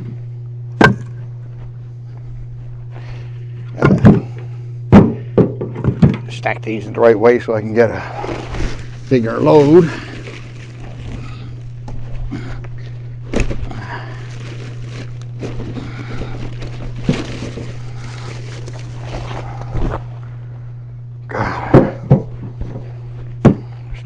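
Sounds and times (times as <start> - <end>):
steady low hum: 0.0 - 24.0
logs knocking together: 0.8 - 1.2
rustling and shuffling: 1.2 - 4.7, 7.4 - 20.7.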